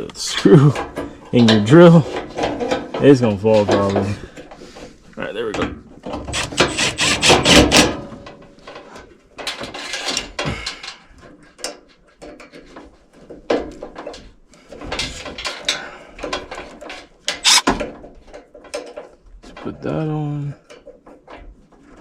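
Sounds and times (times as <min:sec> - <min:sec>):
hands handling parts and tools: 0:17.0 - 0:17.8.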